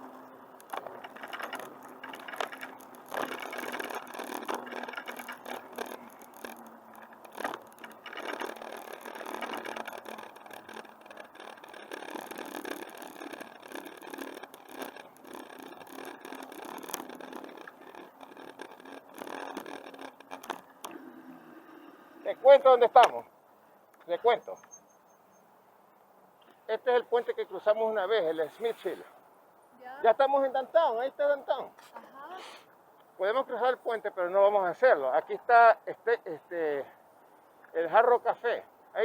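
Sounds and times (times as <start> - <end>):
bicycle scraping over bumps: 0.0 - 23.0, 27.1 - 29.2
bicycle parts rattling and clicking: 0.1 - 21.0.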